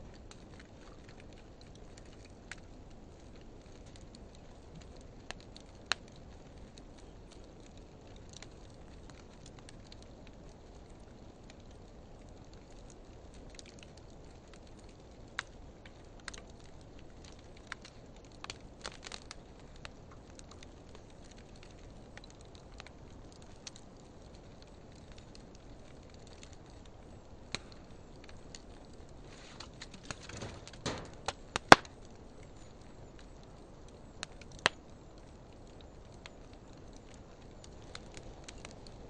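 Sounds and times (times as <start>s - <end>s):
fire popping and crackling: 0.0s - 39.0s
wood fire hissing: 0.1s - 39.0s.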